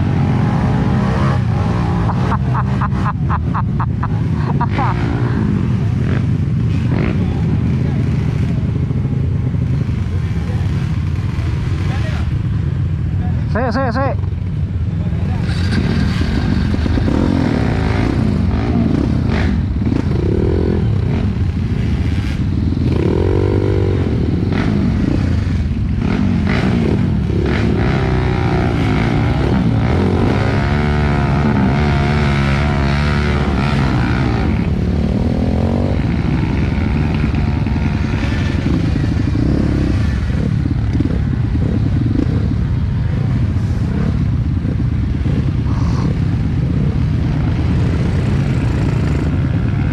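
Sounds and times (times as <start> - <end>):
dirt bike engine revving: 15.4 - 49.9.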